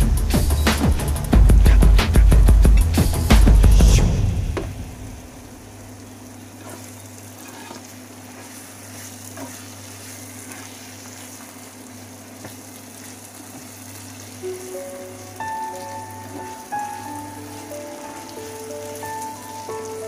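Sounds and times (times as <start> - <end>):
steady low hum: 0.0 - 7.3
food sizzling in a frying pan: 5.3 - 20.0
spatula scraping a pan: 6.6 - 11.5.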